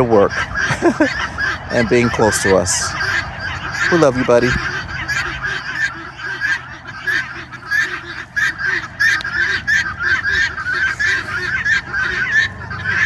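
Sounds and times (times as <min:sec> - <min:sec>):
poultry honking calls: 0:00.0 - 0:13.0.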